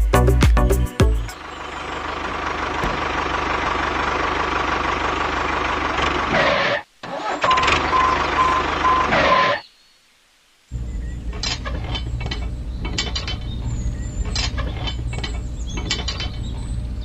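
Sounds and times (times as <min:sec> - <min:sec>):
small tractor engine running: 0:01.3 - 0:09.4, 0:10.8 - 0:17.0
repeating beep: 0:07.4 - 0:09.6.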